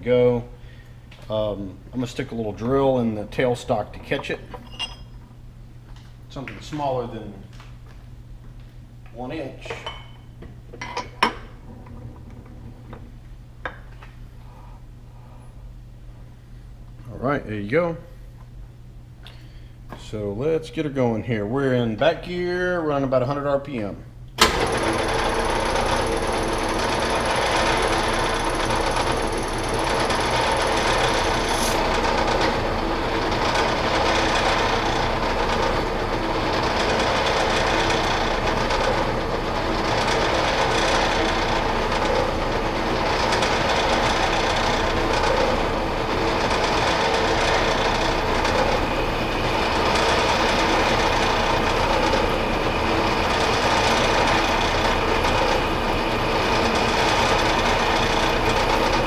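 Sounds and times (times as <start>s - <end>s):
metal lathe running: 4.1s - 5.1s, 24.4s - 59.0s.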